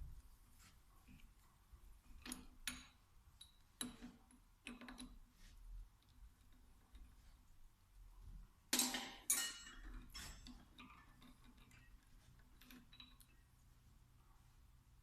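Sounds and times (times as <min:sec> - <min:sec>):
metal tools clinking on workbench: 0:08.8 - 0:12.0.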